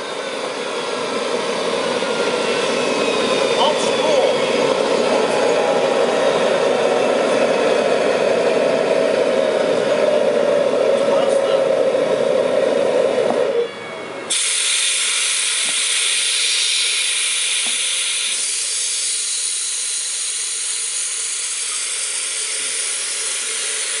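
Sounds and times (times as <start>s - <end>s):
loud high hiss: 14.3s - 24.0s.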